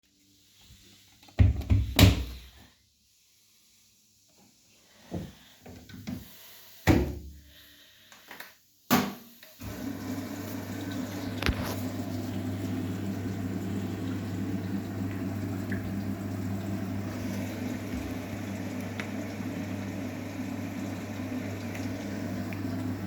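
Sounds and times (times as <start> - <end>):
washing machine knocks and clicks: 1.4 - 2.3
washing machine filling hum: 9.6 - 23.0.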